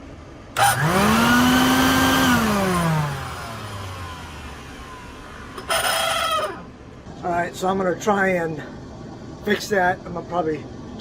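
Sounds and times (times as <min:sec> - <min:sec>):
shop vacuum motor: 0:00.6 - 0:06.7
thin squeal: 0:05.6 - 0:06.6.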